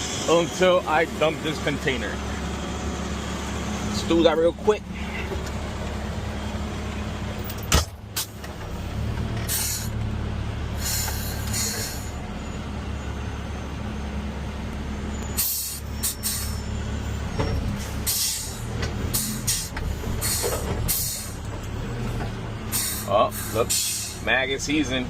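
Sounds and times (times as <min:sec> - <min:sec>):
garbage truck diesel engine running: 0:00.0 - 0:25.0
short air hisses: 0:09.5 - 0:09.9, 0:10.8 - 0:12.1, 0:18.1 - 0:18.6, 0:19.2 - 0:21.4, 0:22.7 - 0:24.2.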